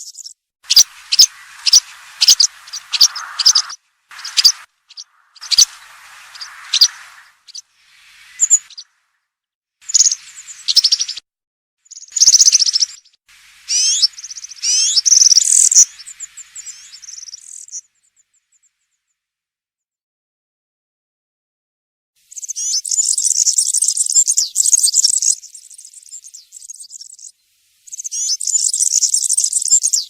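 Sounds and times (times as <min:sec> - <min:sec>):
songbird jingling twitters: 0:00.0 - 0:08.8, 0:09.9 - 0:11.2.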